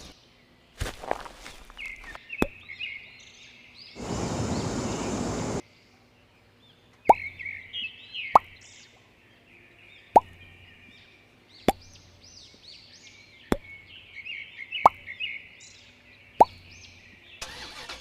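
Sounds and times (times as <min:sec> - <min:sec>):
birds chirping: 0:01.0 - 0:05.6
loud even hiss: 0:04.0 - 0:05.6.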